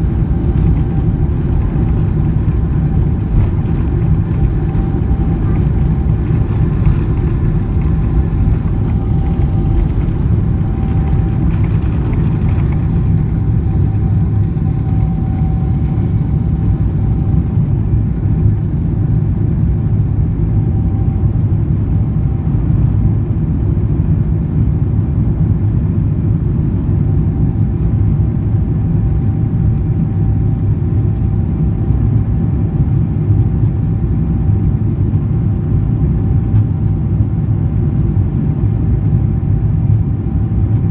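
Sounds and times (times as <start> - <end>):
faint steady whine: 0.0 - 23.1
jet engine and airflow rumble: 0.0 - 40.9.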